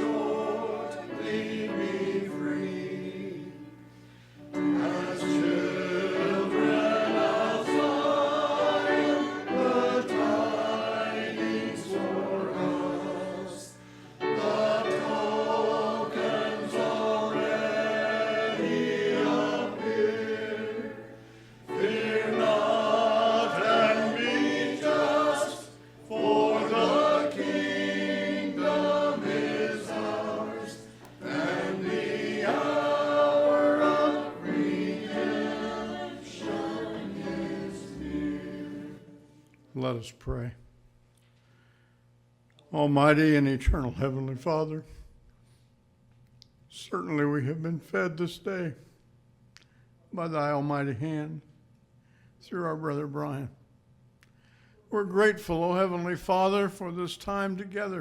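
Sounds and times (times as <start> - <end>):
congregation singing a hymn: 0.0 - 40.0.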